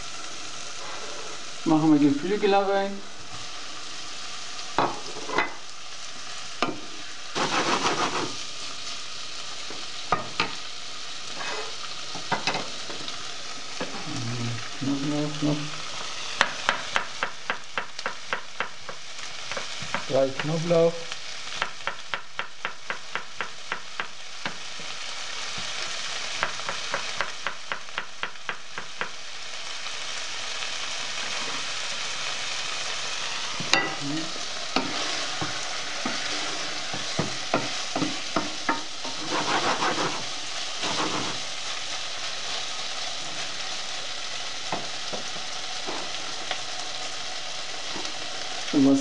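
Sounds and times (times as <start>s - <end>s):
chicken sizzling in oil: 0.0s - 49.0s
wooden spoon scraping a pot: 7.4s - 8.4s, 11.4s - 11.8s, 34.8s - 41.5s.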